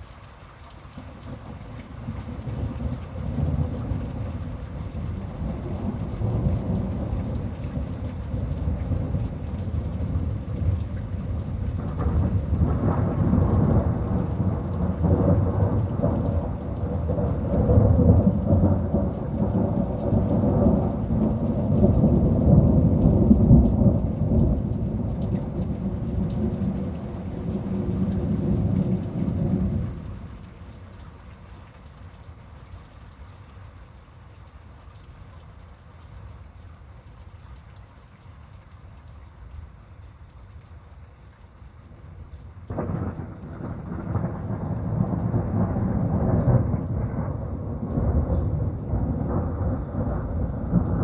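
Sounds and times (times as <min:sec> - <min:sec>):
rain: 0:00.0 - 0:51.0
rolling thunder: 0:01.3 - 0:30.6, 0:42.7 - 0:51.0.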